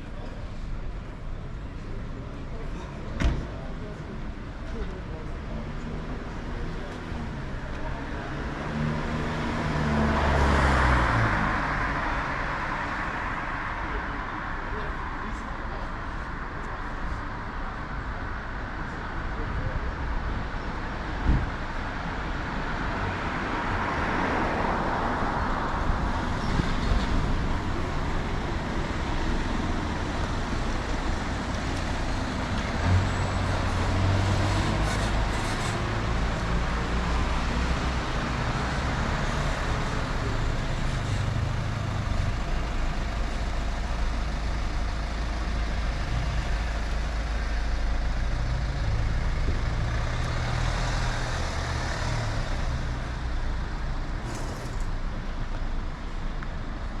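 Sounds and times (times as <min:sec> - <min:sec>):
heavy vehicle engine hum: 0:24.8 - 0:57.0
motor vehicles passing: 0:26.0 - 0:55.3.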